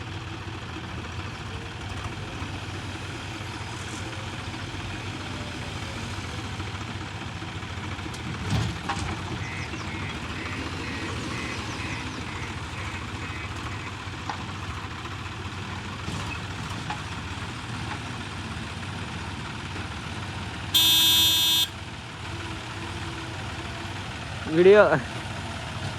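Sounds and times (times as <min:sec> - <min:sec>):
heavy diesel engine running: 0:00.0 - 0:25.9.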